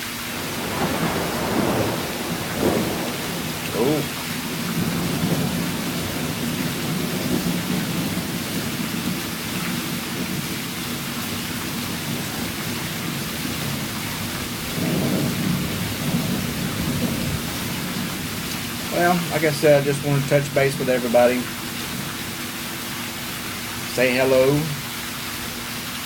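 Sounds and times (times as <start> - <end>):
thunder rumbling: 0.0 - 25.6
heavy rain: 0.0 - 26.0.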